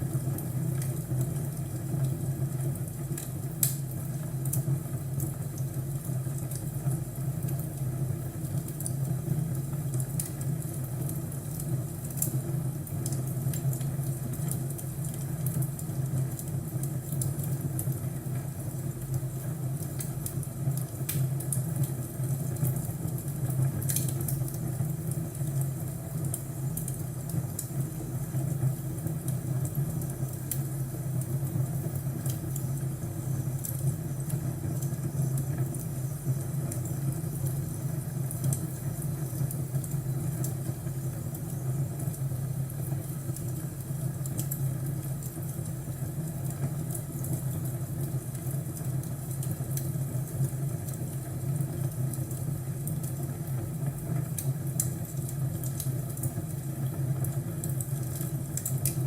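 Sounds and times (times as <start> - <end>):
low fire rumble: 0.0 - 59.0
burning wood snapping and popping: 3.1 - 5.4, 19.8 - 27.8, 53.1 - 59.0.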